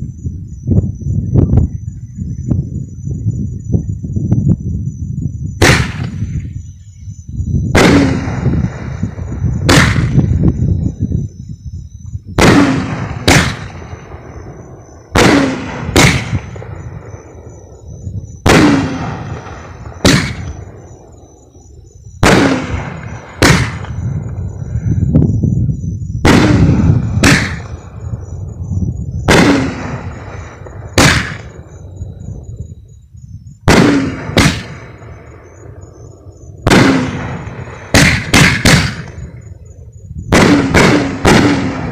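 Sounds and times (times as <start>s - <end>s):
fireworks booming reports: 5.5s - 6.7s, 7.6s - 11.4s, 12.3s - 41.9s.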